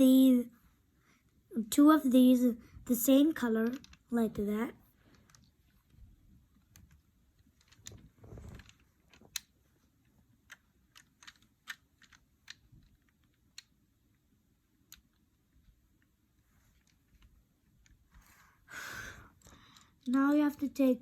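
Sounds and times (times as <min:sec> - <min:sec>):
plastic bricks clicking together: 0:06.5 - 0:16.1, 0:19.2 - 0:20.7
soft low rustle: 0:07.6 - 0:09.3.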